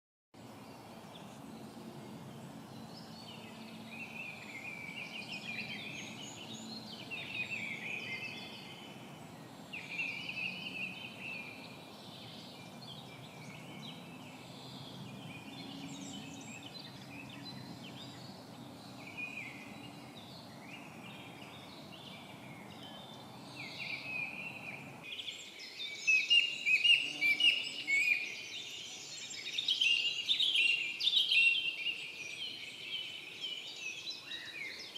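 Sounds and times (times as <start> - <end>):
birds singing: 0.4 - 34.9.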